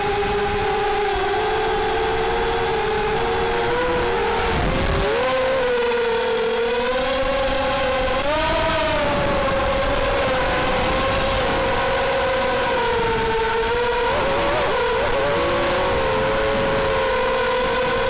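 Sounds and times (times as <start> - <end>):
quadcopter motors whining: 0.0 - 18.0
wind rumble: 7.2 - 18.0.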